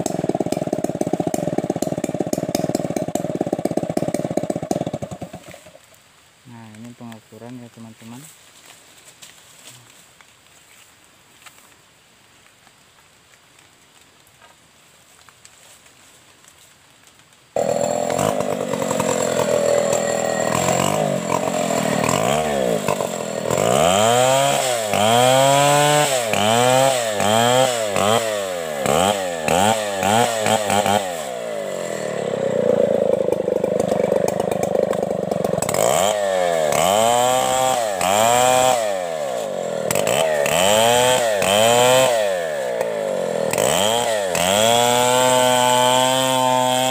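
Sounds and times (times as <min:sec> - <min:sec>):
chainsaw revving: 0:00.0 - 0:05.8, 0:17.6 - 0:46.9.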